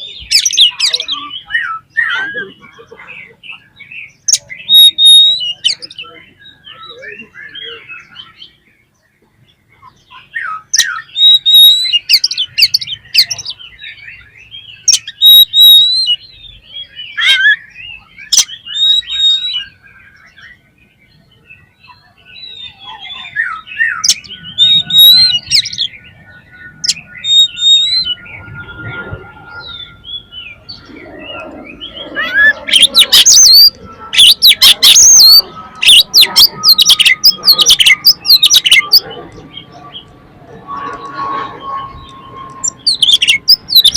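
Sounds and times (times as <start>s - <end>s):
bird singing whistled phrases: 0.0s - 2.9s, 3.5s - 8.6s, 9.7s - 43.9s
bird harsh rapid notes: 0.0s - 6.8s, 10.3s - 16.2s, 22.4s - 43.9s.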